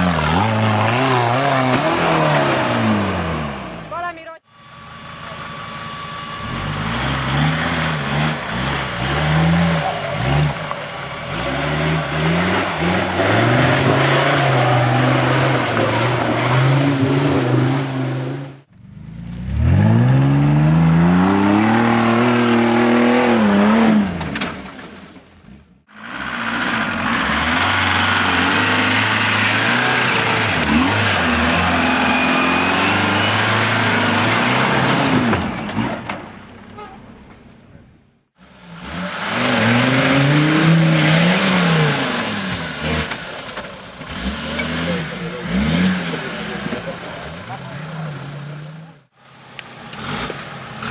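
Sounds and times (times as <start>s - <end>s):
off-road engines revving hard: 0.0s - 3.9s, 6.4s - 18.7s, 19.3s - 24.5s, 26.0s - 36.1s, 38.4s - 49.1s, 49.8s - 50.9s
tyre and mud noise: 6.5s - 18.4s, 19.1s - 37.8s.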